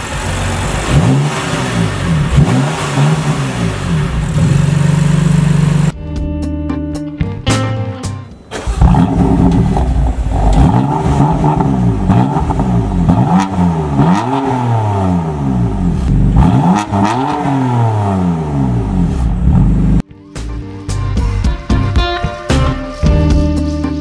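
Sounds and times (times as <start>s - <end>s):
car engine starting and revving: 0.0s - 6.0s, 8.5s - 20.0s.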